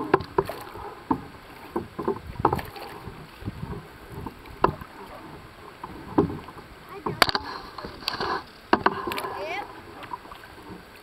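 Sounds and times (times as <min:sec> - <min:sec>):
low water wash: 0:00.0 - 0:11.0
paddle splashes and hull knocks: 0:00.0 - 0:11.0.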